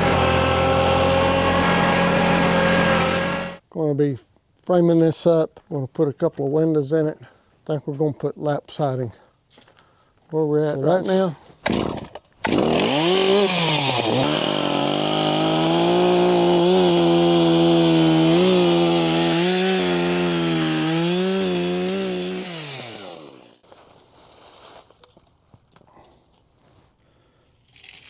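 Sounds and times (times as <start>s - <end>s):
chainsaw running at high revs: 0.0s - 3.6s, 11.7s - 23.6s.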